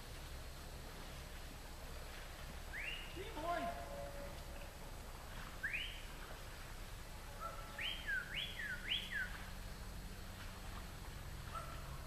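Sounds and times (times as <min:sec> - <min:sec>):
bird whistling call: 0:02.7 - 0:03.2, 0:05.6 - 0:06.1, 0:07.4 - 0:09.4.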